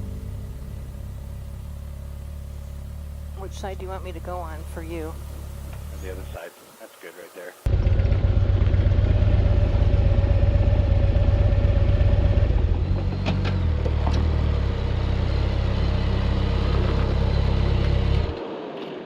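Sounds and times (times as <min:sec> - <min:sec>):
motorcycle engine idling: 0:00.0 - 0:06.3, 0:07.7 - 0:13.8.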